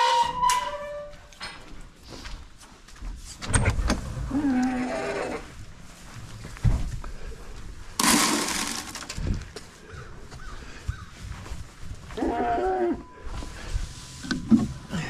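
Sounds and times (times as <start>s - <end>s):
metallic squeak: 0.0s - 1.5s
goat bleating: 12.2s - 13.0s.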